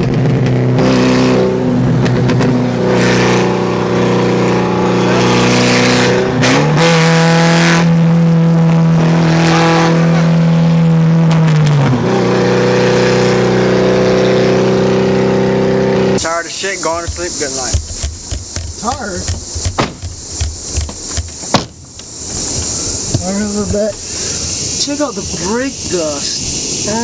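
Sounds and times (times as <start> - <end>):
car engine droning: 0.0 - 26.0.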